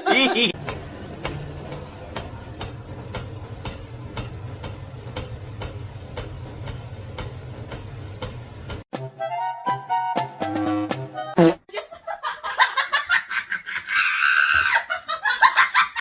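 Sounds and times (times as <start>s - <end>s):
music: 8.9s - 11.6s.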